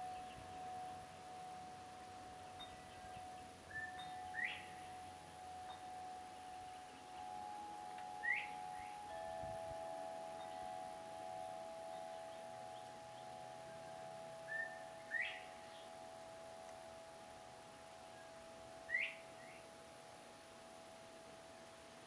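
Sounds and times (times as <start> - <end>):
faint steady hum: 0.0 - 22.0
rising bird whistles: 14.5 - 15.5.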